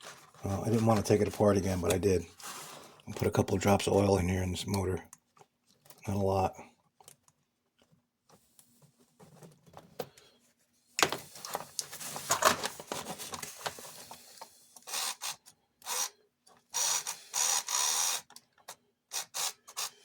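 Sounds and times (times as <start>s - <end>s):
toy motor and gears running: 14.8s - 18.4s, 19.1s - 20.0s.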